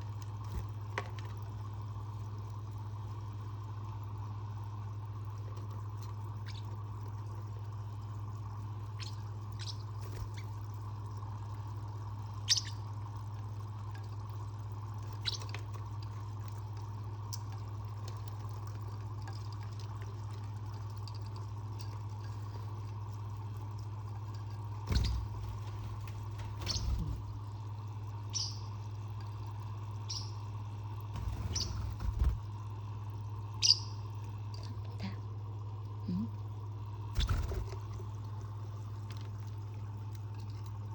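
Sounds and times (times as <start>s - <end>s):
steady low hum: 0.0s - 40.9s
birds chirping: 6.4s - 6.8s, 8.9s - 10.6s, 12.4s - 12.9s, 15.1s - 15.5s, 24.9s - 27.5s, 28.2s - 28.9s, 30.0s - 30.5s, 31.2s - 32.5s, 33.6s - 34.1s, 37.2s - 37.9s.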